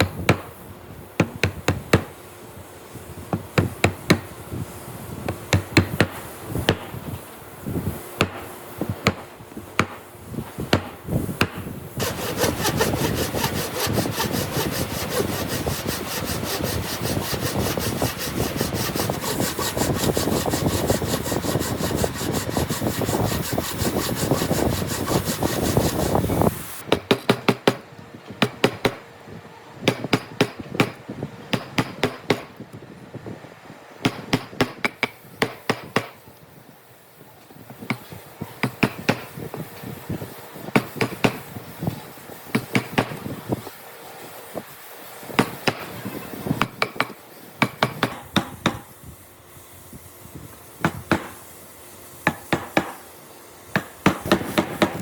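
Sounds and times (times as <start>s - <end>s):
hand saw cutting wood: 11.4s - 27.5s, 45.3s - 48.9s, 52.2s - 53.1s, 53.8s - 55.0s.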